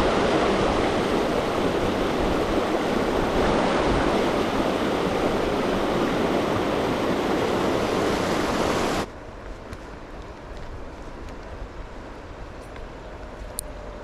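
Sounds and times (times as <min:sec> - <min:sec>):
river water rushing: 0:00.0 - 0:09.1.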